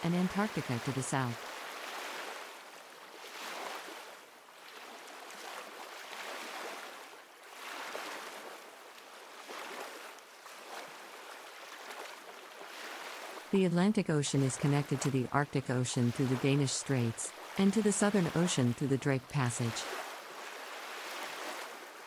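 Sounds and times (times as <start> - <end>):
ocean waves washing: 0.0 - 2.6, 12.6 - 22.0.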